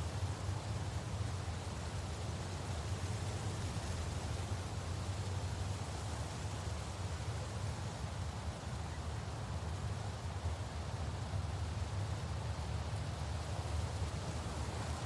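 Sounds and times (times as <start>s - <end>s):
wind blowing through branches: 13.0s - 15.0s.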